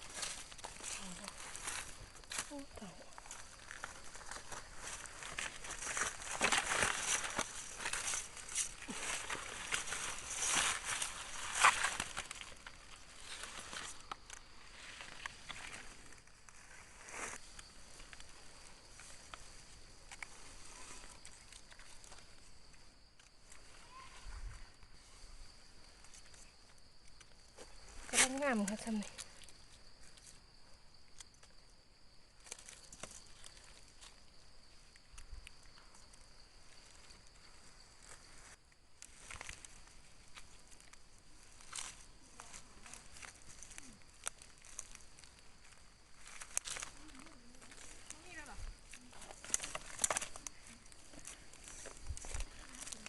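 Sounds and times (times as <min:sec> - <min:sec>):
dry leaves rustling and crackling: 0:00.0 - 0:17.5, 0:41.4 - 0:53.0
small twigs snapping: 0:46.2 - 0:48.2, 0:48.9 - 0:53.0.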